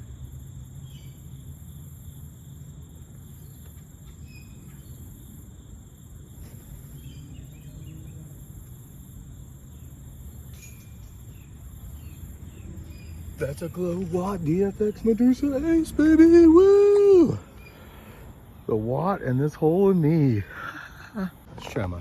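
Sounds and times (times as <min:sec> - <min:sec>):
crickets and insects chirring: 0:00.0 - 0:22.0
faint bird chirps: 0:00.8 - 0:01.4, 0:03.1 - 0:05.4, 0:06.4 - 0:21.9
wind rumbling on microphone: 0:10.9 - 0:17.2.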